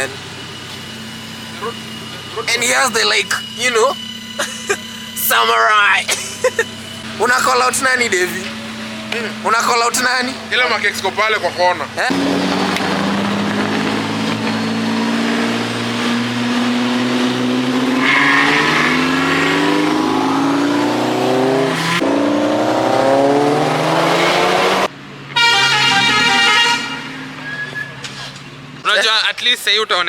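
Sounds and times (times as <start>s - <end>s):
car engine revving: 0.0s - 29.0s
car horn: 1.0s - 11.0s, 24.2s - 28.4s.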